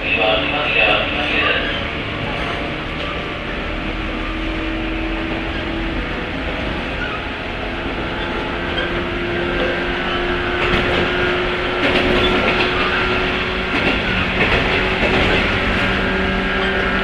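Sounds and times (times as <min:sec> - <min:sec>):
electric train rumble and motor hum: 0:00.0 - 0:17.0
wheels clicking over rail joints: 0:05.4 - 0:16.8.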